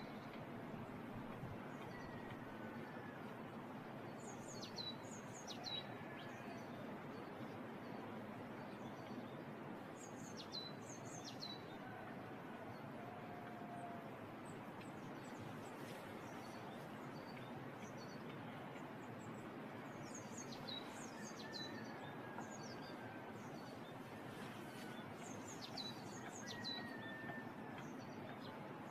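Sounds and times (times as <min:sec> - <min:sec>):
small birds chirping: 0:14.8 - 0:28.9.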